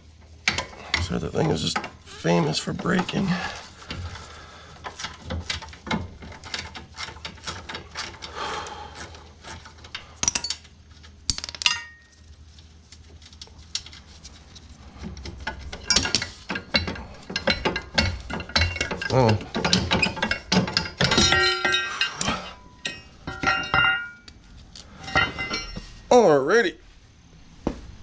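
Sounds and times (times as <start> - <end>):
metal clinking on metal: 9.8 - 12.3, 15.4 - 24.3, 25.0 - 26.1.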